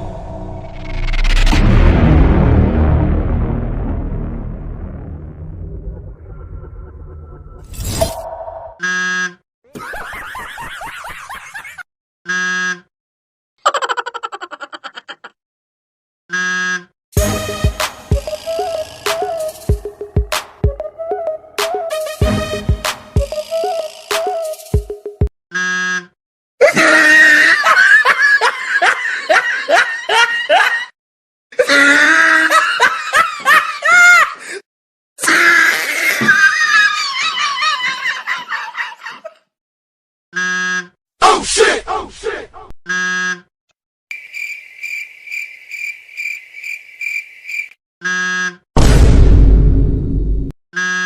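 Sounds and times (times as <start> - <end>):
buzzer tone: 8.8 - 9.4, 12.3 - 12.9, 16.3 - 16.9, 25.5 - 26.2, 40.4 - 41.0, 42.9 - 43.5, 48.0 - 48.6, 50.8 - 51.0
high-pitched laughter: 9.7 - 11.8, 13.6 - 15.4, 26.6 - 30.9, 31.6 - 34.4, 35.3 - 39.4
hip-hop beat: 17.2 - 25.3
crickets chirping: 44.1 - 47.8.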